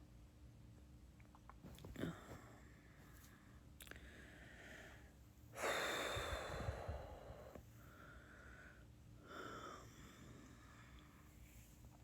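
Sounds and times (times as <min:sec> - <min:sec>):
woman breathing heavily: 0:04.0 - 0:11.2.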